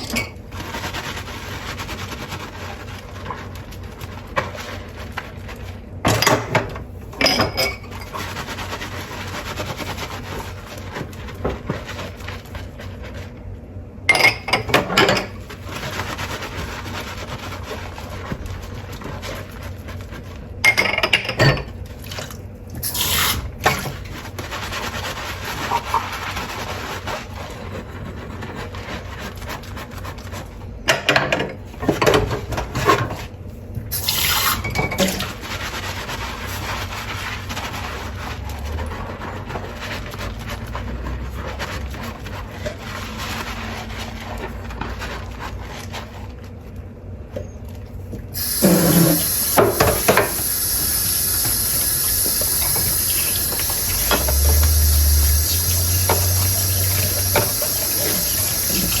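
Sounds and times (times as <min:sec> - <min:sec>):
dishes clinking and clattering: 0:00.0 - 0:00.4, 0:06.1 - 0:08.2, 0:14.1 - 0:15.4, 0:20.6 - 0:21.8
tap water running: 0:22.0 - 0:24.1, 0:33.8 - 0:35.6, 0:48.4 - 0:59.0.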